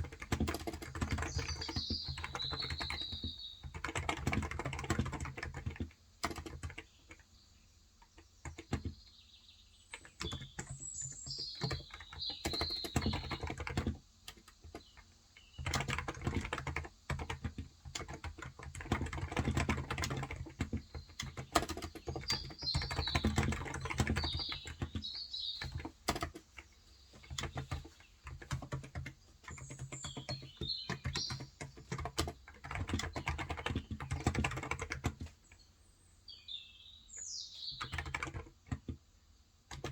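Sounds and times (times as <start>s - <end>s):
bird chirping: 0.0s - 5.1s, 6.7s - 13.8s, 14.6s - 16.7s, 18.4s - 38.5s
keyboard typing: 0.0s - 7.3s, 8.1s - 9.1s, 9.9s - 35.6s, 37.7s - 39.1s, 39.7s - 39.9s.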